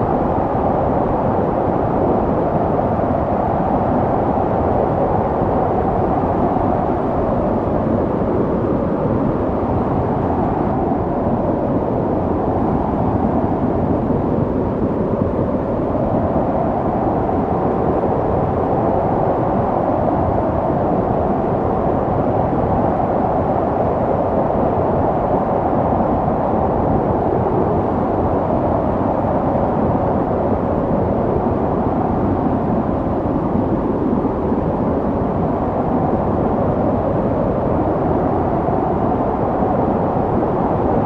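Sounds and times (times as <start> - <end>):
snowstorm wind howling: 0.0 - 41.0.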